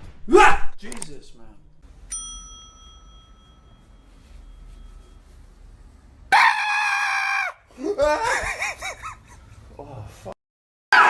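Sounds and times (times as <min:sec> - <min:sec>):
loud high-pitched cry: 0:06.3 - 0:09.0.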